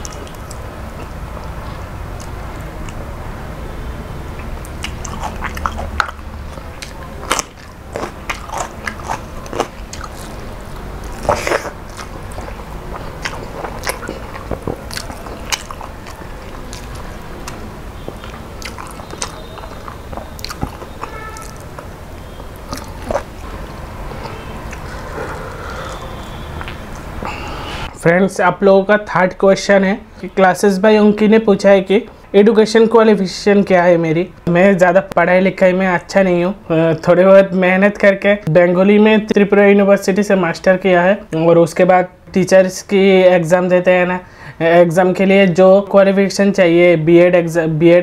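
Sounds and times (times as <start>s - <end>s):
person chewing food: 0.0s - 3.1s, 4.4s - 27.9s
sharp food crunches: 4.7s - 21.9s, 22.6s - 23.4s.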